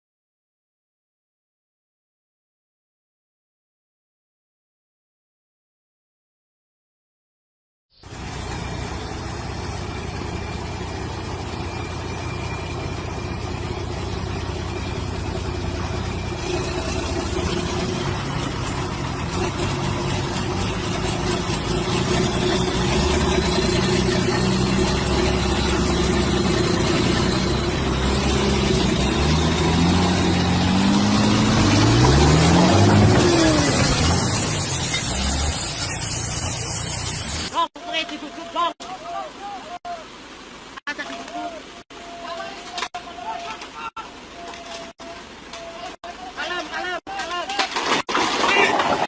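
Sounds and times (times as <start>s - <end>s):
vehicle engine running: 8.0s - 37.5s.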